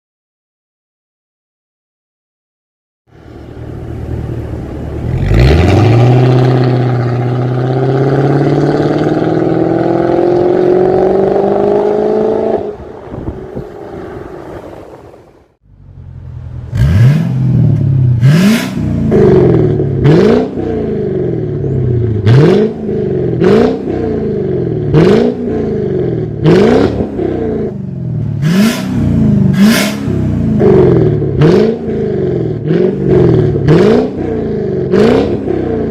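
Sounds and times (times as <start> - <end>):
car engine revving: 3.2 - 35.9.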